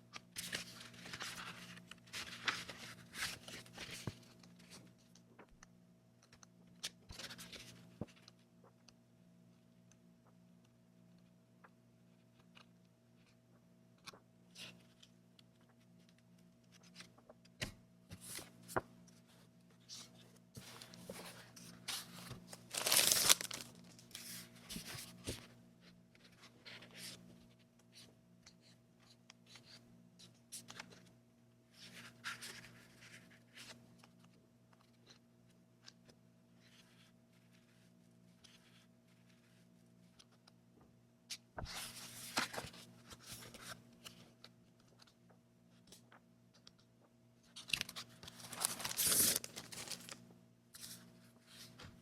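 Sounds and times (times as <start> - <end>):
paper and packaging rustling: 20.6 - 25.4, 47.6 - 50.2
paper tearing: 48.4 - 50.2.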